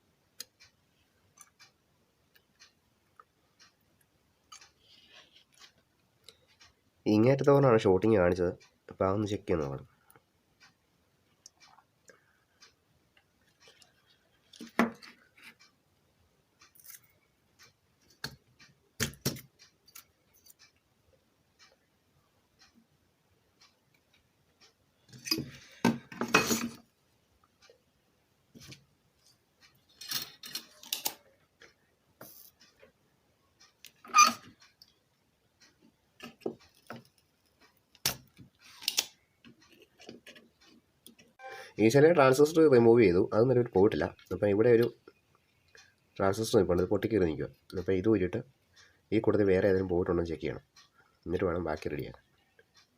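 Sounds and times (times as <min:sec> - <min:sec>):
small clicks and taps: 0:10.1 - 0:15.8, 0:16.6 - 0:20.9, 0:35.6 - 0:41.4
hand tools clicking and tapping: 0:18.0 - 0:20.6
metallic rattle of tools: 0:29.8 - 0:31.2.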